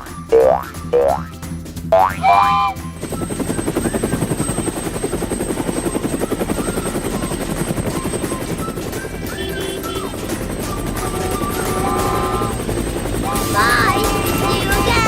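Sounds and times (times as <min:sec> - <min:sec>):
rising cartoon sound effect: 0:00.0 - 0:01.2, 0:02.0 - 0:03.0
rapid rotor-like chopping: 0:00.0 - 0:15.0.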